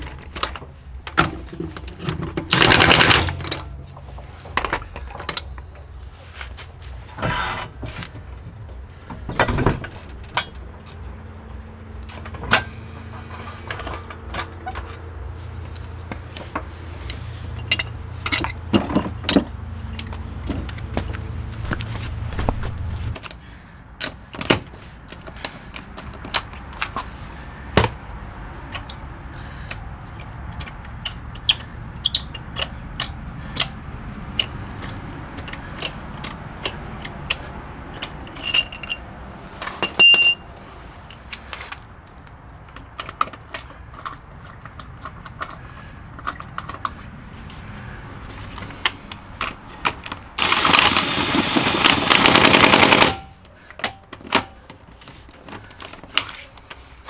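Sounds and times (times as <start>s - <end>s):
tools and parts clattering: 0.0s - 23.4s, 24.0s - 57.0s
loud steady whirring: 49.7s - 53.4s.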